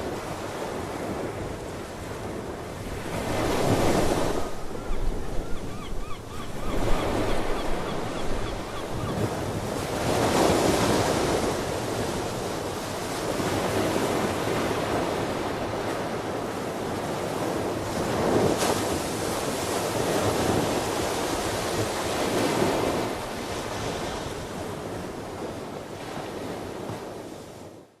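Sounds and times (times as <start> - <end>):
wind on microphone: 0.0 - 16.4
ocean waves washing ashore: 0.0 - 27.9
sea-bird calls: 4.2 - 9.7.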